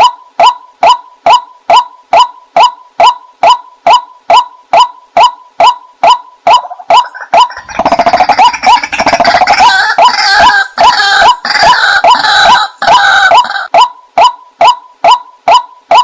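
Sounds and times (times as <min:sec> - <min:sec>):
waterhen calling: 0:01.3 - 0:16.0
chorus of waterhen calls: 0:07.0 - 0:13.7.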